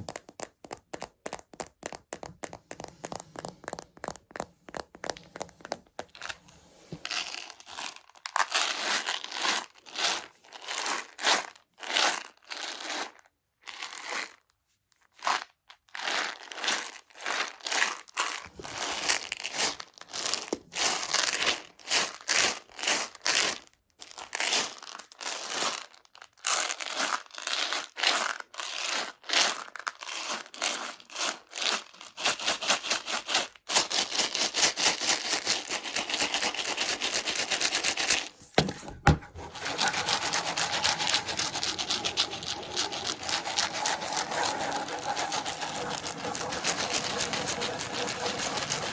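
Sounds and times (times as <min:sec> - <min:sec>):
candy pellets rattling in plastic container: 0:26.8 - 0:38.3, 0:39.4 - 0:48.9.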